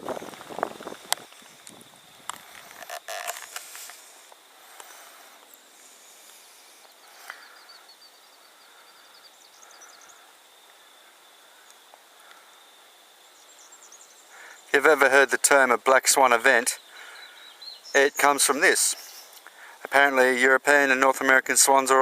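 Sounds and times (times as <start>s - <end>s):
high insect drone: 0.0s - 22.0s
faint bird chirps: 5.3s - 14.7s, 16.7s - 19.7s.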